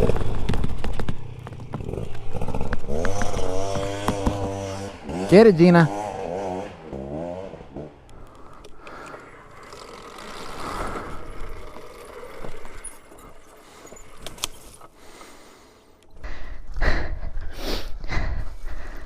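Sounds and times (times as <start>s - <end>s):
tyre noise on dirt: 0.0s - 15.4s
faint electric motor whine: 8.0s - 15.0s
chain rattle: 9.2s - 14.9s.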